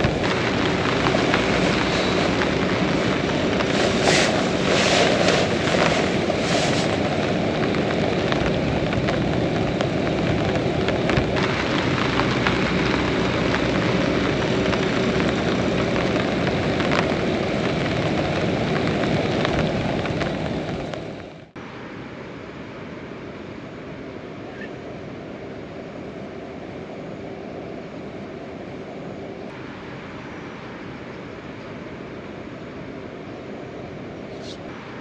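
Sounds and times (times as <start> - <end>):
raindrops clicking: 0.0 - 21.5
heavy rain falling: 0.0 - 21.6.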